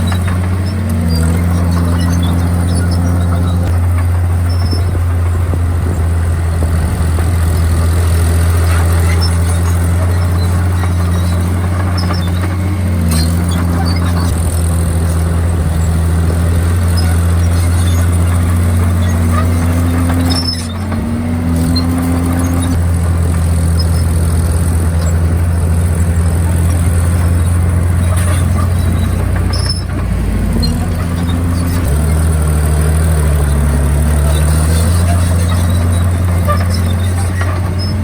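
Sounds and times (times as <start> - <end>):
bulldozer diesel engine running: 0.0 - 38.0.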